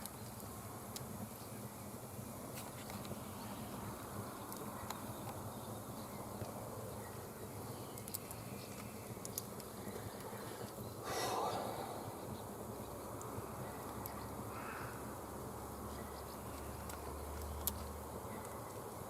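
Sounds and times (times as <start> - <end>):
rush of noise: 11.0 - 13.0.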